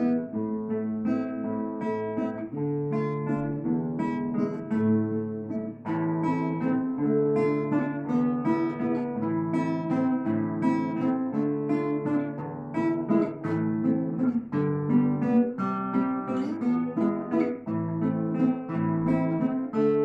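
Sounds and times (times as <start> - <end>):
plucked string duet: 0.0 - 20.0.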